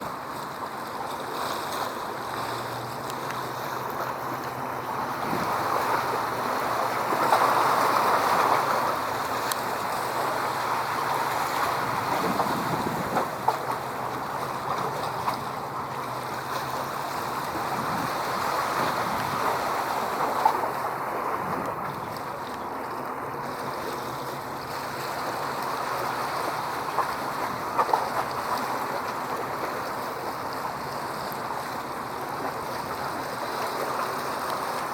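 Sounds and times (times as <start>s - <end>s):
waves washing: 0.0s - 34.9s
wind on microphone: 5.1s - 7.2s, 10.2s - 15.6s, 17.3s - 22.4s.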